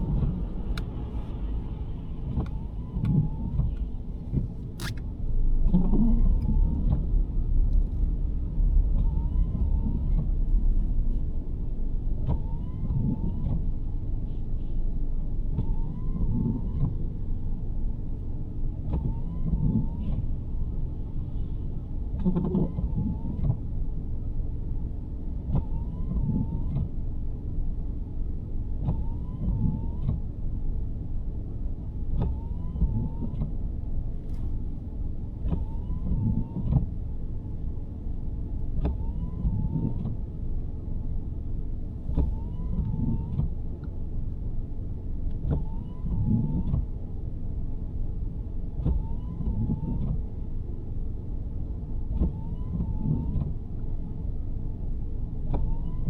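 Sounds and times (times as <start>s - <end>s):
windshield wipers sweeping: 0.0s - 5.1s, 34.1s - 37.0s, 41.8s - 44.0s
car road rumble: 0.0s - 56.0s.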